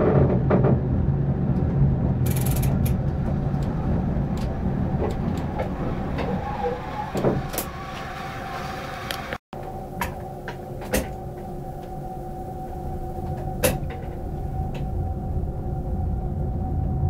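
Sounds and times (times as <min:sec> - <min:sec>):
electric train hum: 0:00.0 - 0:17.0
low rumble: 0:00.0 - 0:17.0
sharp clicks and knocks: 0:01.6 - 0:06.4.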